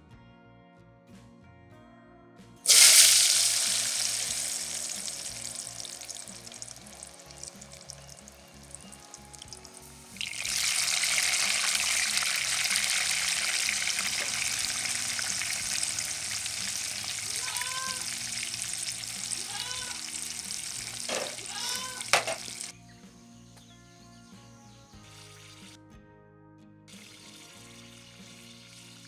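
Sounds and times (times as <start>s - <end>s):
deep-frying sizzle in hot oil: 2.7s - 22.7s, 26.9s - 29.0s.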